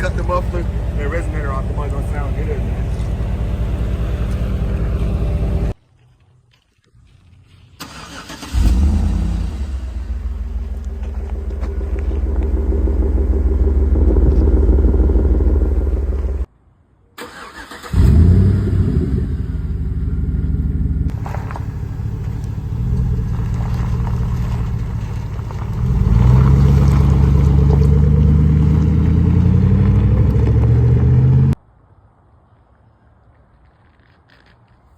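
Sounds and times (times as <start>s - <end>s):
loud car engine exhaust: 0.0s - 5.8s, 8.5s - 16.5s, 18.0s - 31.6s.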